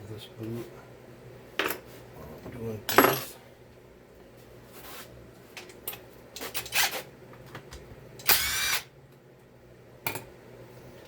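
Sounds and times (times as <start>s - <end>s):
power tool motor whirring: 8.3s - 8.8s.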